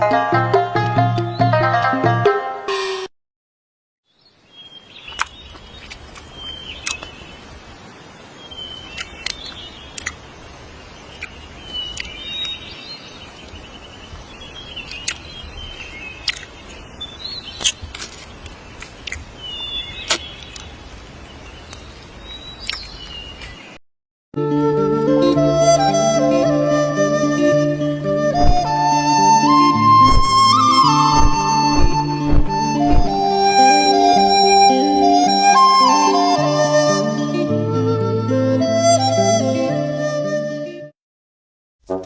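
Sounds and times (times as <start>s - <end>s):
birds calling: 4.1s - 23.8s, 28.2s - 35.6s
background hiss: 4.2s - 23.7s
low rumble: 29.8s - 33.3s.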